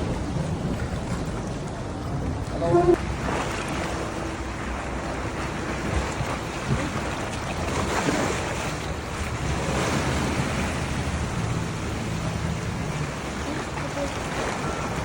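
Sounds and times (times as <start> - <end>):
wind buffeting microphone: 0.0 - 4.4
low motor hum: 0.0 - 15.0
sea water washing around boat: 0.0 - 15.0.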